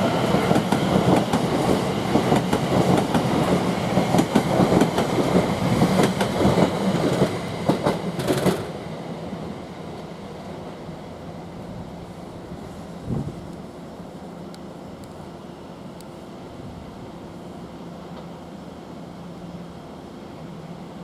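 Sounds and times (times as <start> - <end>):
train wheels clicking over rails: 0.0 - 8.8.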